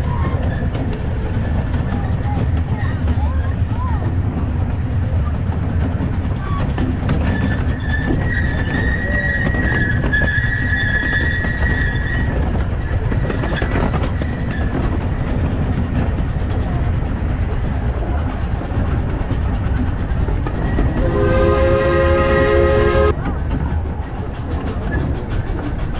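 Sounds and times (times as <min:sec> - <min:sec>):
steam train rumbling: 0:00.0 - 0:25.9
high wheel squeal: 0:06.4 - 0:14.8.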